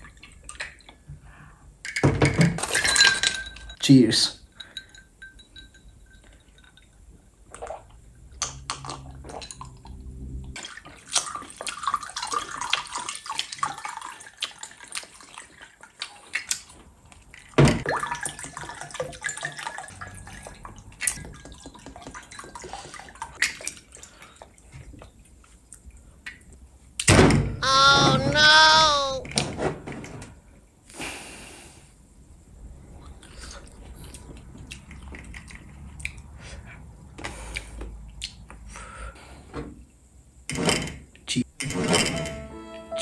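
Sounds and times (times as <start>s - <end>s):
glass clinking: 2.8s - 3.8s, 4.6s - 7.0s.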